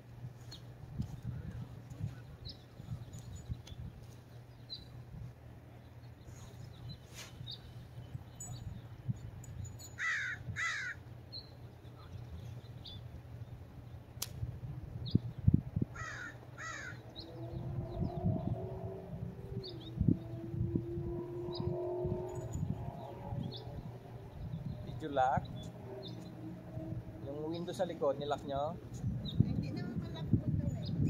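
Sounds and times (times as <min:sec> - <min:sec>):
large bird harsh calls: 0:10.0 - 0:11.0, 0:16.0 - 0:17.3
steady low rumble: 0:10.4 - 0:31.0.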